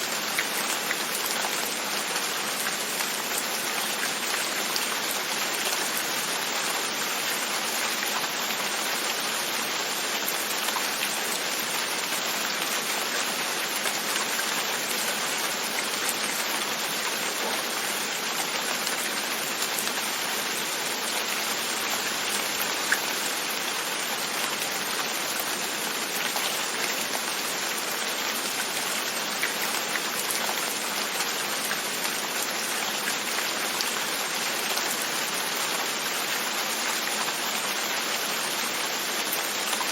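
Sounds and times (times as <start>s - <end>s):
rain tapping on a window: 0.2s - 25.5s.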